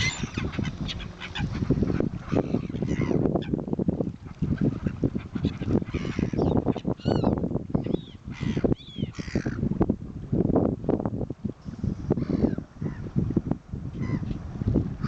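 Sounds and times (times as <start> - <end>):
birds squawking: 0.0 - 3.6, 4.7 - 9.6, 14.0 - 14.2.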